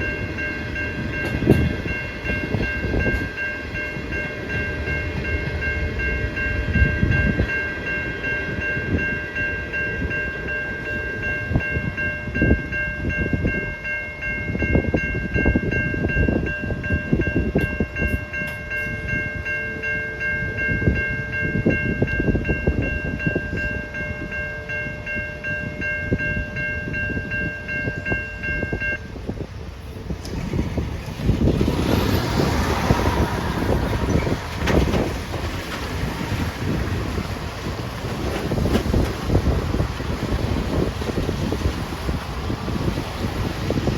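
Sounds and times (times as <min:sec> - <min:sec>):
level crossing bells ringing: 0:00.0 - 0:29.2
passing train rumble: 0:00.0 - 0:43.9.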